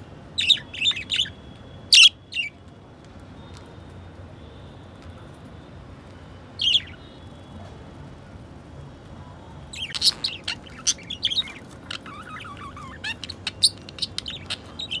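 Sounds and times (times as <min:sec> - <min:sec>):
budgerigars chirping and warbling: 0:00.4 - 0:02.5, 0:06.6 - 0:07.0, 0:09.7 - 0:15.0.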